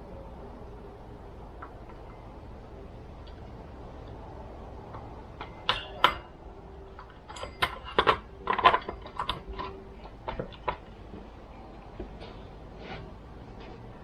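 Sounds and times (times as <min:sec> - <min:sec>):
metal parts and tools clinking: 0:04.9 - 0:11.1.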